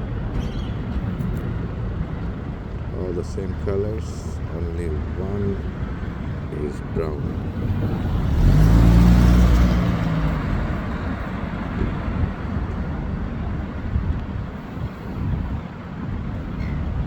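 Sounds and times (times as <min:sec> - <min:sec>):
road traffic rumble: 0:00.0 - 0:17.0
vehicle passing: 0:06.1 - 0:12.6.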